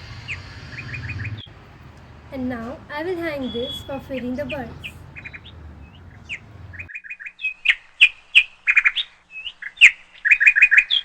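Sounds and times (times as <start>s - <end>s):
low background rumble: 0.0s - 6.9s
small birds chirping: 0.0s - 6.9s.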